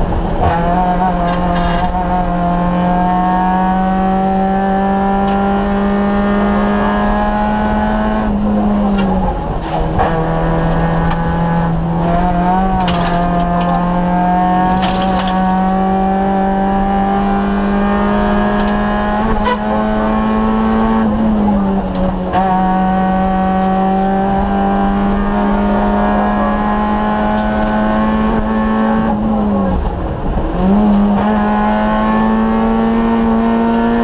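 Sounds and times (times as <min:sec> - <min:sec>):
car engine running hard: 0:00.0 - 0:34.0
clicks and rattles: 0:12.8 - 0:13.8, 0:14.7 - 0:15.8.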